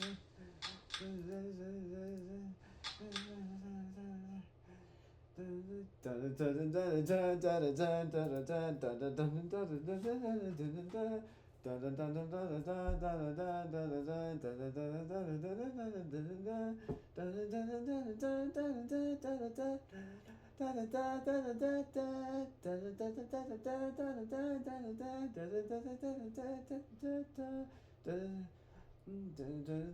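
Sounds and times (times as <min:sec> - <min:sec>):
man humming: 0:00.0 - 0:04.6.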